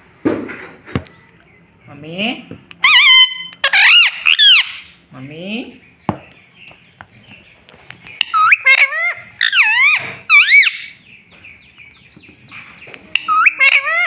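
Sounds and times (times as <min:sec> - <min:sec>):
parakeet squawking: 0:02.8 - 0:05.0, 0:06.6 - 0:14.0.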